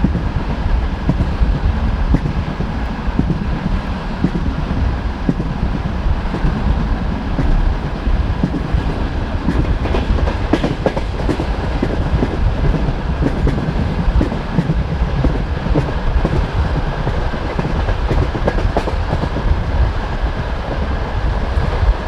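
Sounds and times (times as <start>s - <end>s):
train rumbling: 0.0s - 22.0s
wheels clattering over rail joints: 0.8s - 12.1s.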